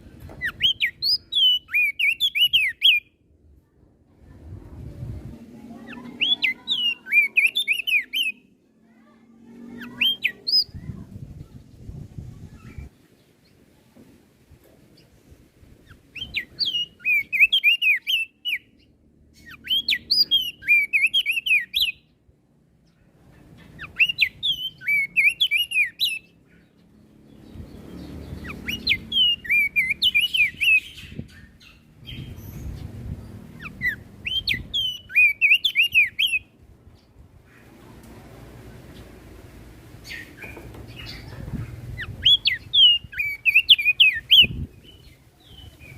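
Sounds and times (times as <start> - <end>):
bird warbling song: 0.2 - 3.1, 5.8 - 8.5, 15.8 - 22.2, 22.9 - 37.8, 40.0 - 45.9.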